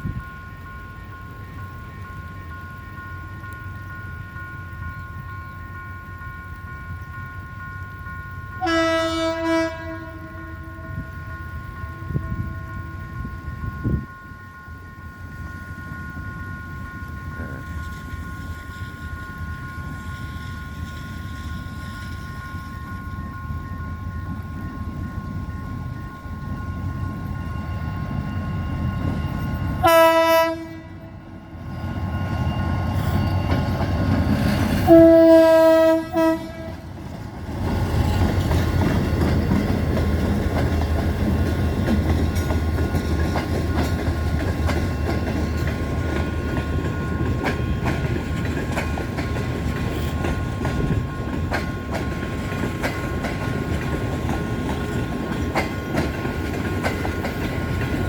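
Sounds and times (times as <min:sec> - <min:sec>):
train coaches rolling past: 0:00.0 - 0:58.0
train horn blasts: 0:08.6 - 0:11.2, 0:29.8 - 0:31.5, 0:34.8 - 0:36.9
wheels clicking over rail joints: 0:31.7 - 0:58.0.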